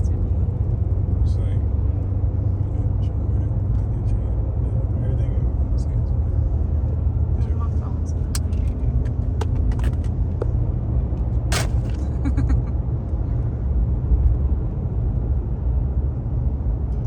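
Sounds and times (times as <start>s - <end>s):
motor vehicle engine rumbling: 0.0s - 13.7s
sharp knock: 11.5s - 12.0s.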